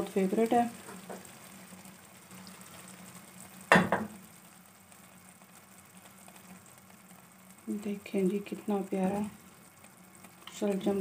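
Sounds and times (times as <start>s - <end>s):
curry sizzling in oil: 0.0s - 11.0s.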